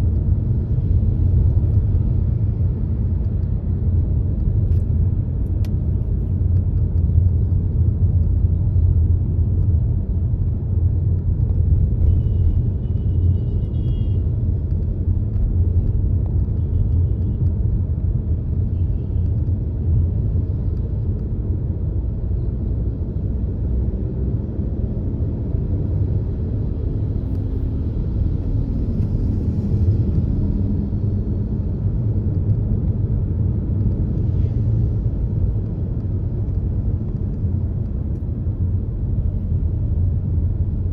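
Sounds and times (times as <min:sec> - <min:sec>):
car road and engine rumble: 0:00.0 - 0:40.9.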